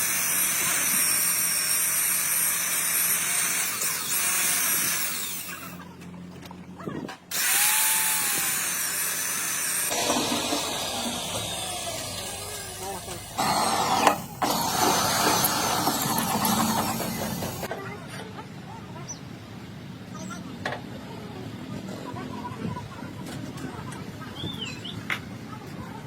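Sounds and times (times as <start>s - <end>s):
power tool running on metal: 0.0s - 5.8s, 7.3s - 17.7s.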